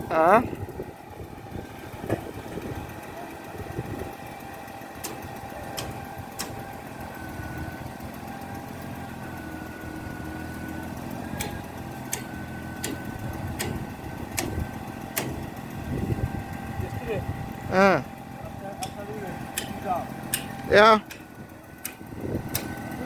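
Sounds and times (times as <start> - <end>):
engine running: 0.0 - 23.0
sharp clicks: 5.0 - 6.6, 11.4 - 15.5, 18.8 - 22.8.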